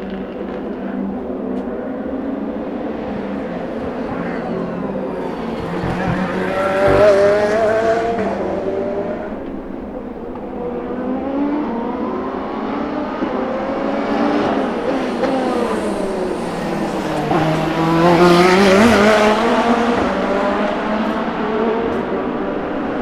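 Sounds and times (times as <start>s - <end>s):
race car engines accelerating: 0.0s - 23.0s.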